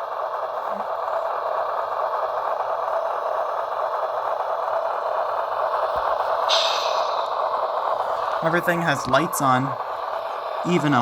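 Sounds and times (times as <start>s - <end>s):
model locomotive engine drone: 0.0s - 11.0s
short high hiss: 6.5s - 7.4s.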